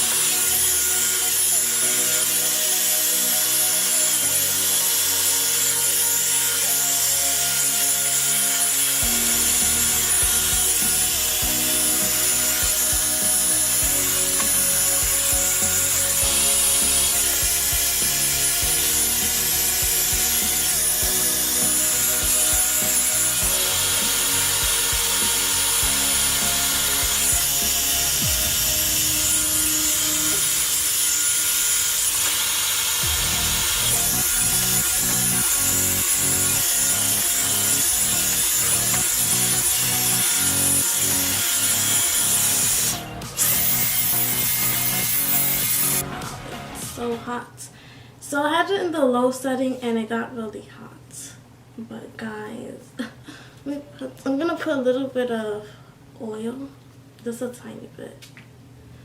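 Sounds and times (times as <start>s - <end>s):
hair dryer brush blowing: 0.0s - 46.4s.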